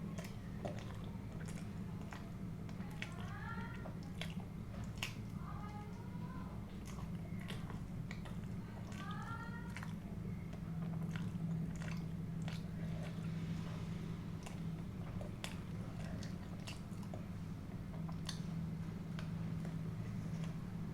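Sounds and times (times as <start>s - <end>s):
person chewing food: 0.0s - 5.8s, 6.5s - 20.9s
wet mouth clicks: 17.9s - 18.5s.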